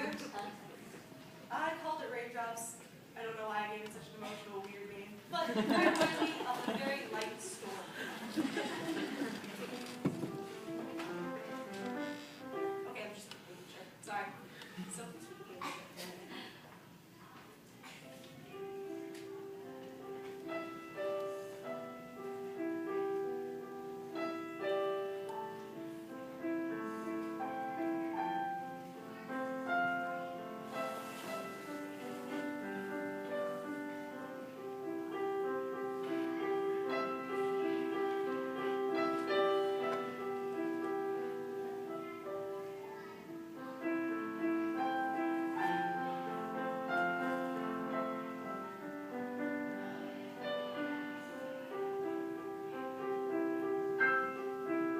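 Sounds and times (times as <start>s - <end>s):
solo classical piano piece: 8.6s - 13.0s, 18.1s - 54.9s.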